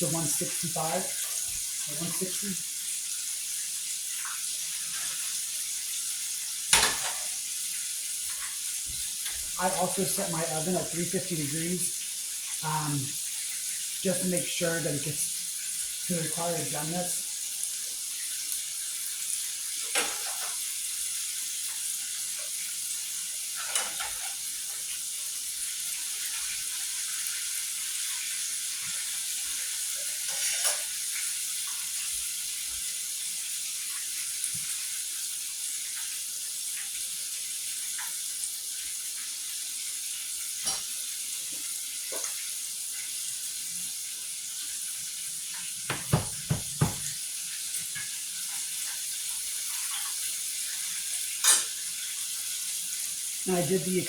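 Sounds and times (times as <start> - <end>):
chicken sizzling in hot oil: 0.0 - 54.0
sharp knocks: 45.9 - 47.1.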